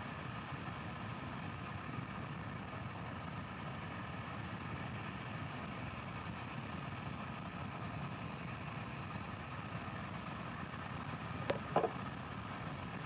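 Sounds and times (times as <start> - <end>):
faint hum: 7.7 - 13.0.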